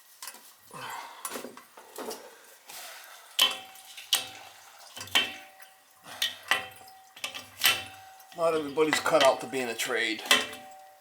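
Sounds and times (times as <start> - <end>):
metal tools clanking on pipework: 3.4 - 11.0.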